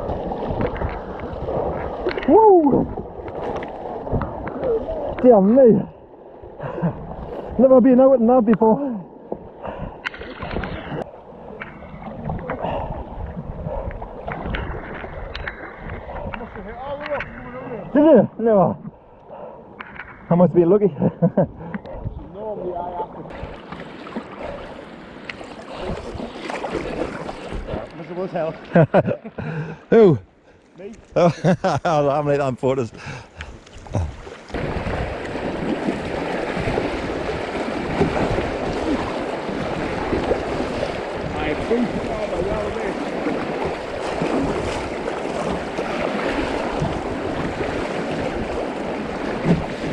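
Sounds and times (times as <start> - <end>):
short water splashes: 0.0 - 20.3, 21.6 - 29.8, 32.0 - 49.9
wind buffeting microphone: 9.6 - 18.0, 21.4 - 23.6, 33.0 - 49.9
river water rushing and splashing: 23.1 - 28.8, 33.7 - 49.9.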